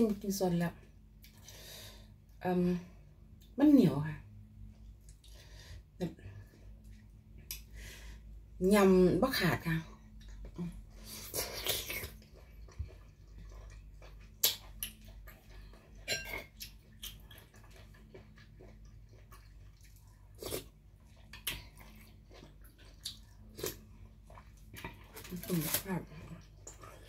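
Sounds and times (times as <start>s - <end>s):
faint low hum: 0.0s - 27.0s
chewing: 10.2s - 27.0s.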